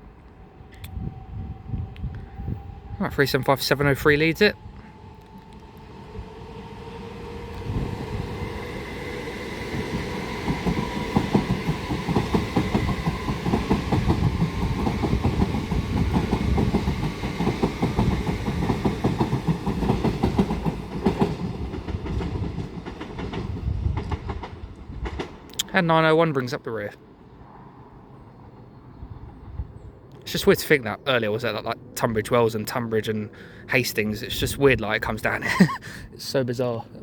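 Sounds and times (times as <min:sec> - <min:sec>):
train rumble and whine: 0:00.0 - 0:37.0
train wheel clicks over rail joints: 0:10.5 - 0:25.7.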